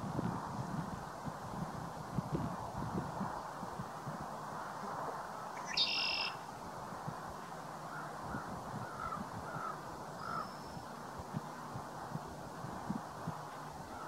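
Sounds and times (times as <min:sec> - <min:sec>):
background hiss: 0:00.0 - 0:14.0
harsh bird call: 0:05.6 - 0:06.4
soft short bird notes: 0:05.6 - 0:06.4.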